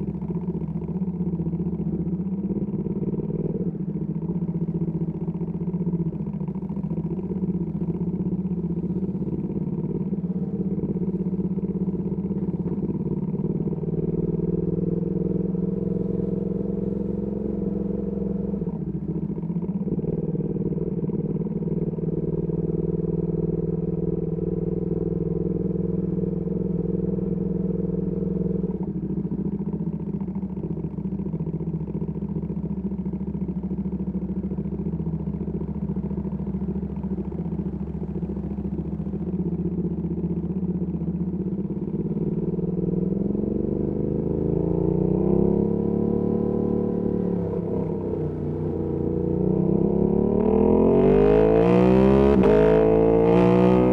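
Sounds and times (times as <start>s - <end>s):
motorcycle engine revving: 41.8s - 53.9s.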